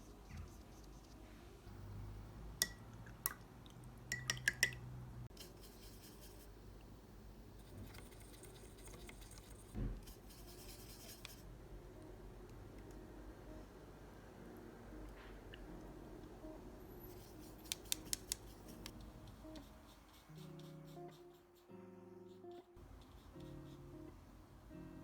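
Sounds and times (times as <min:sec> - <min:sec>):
brush scratching over paper: 0:05.3 - 0:06.6, 0:07.6 - 0:11.5, 0:17.1 - 0:21.7.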